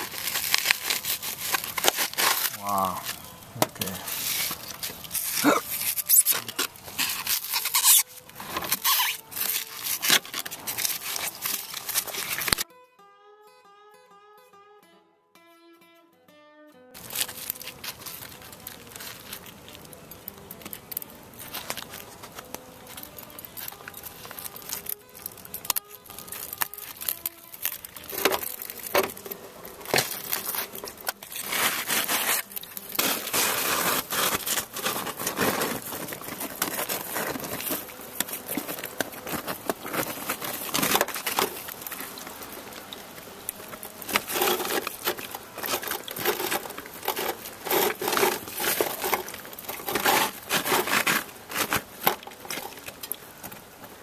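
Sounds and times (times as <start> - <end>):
brittle material crackling and crunching: 0.0 - 12.6, 17.0 - 54.0
faint guitar music: 0.0 - 49.7.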